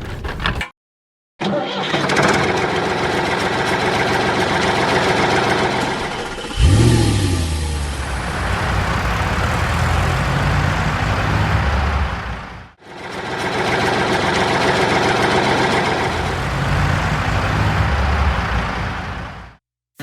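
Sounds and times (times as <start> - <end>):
engines running: 2.0 - 19.6
deeper engine running: 2.6 - 19.6.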